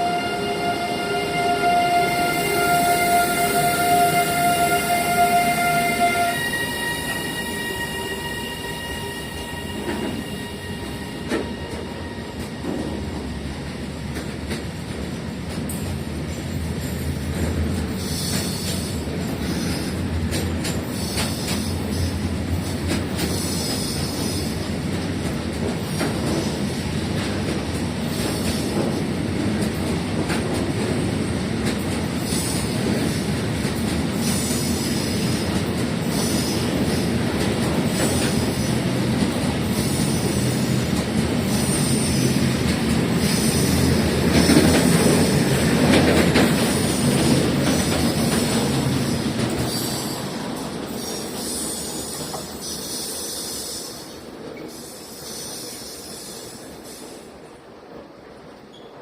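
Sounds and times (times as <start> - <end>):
train horn: 0.0 - 12.9
train wheels rumbling on rails: 0.0 - 59.0.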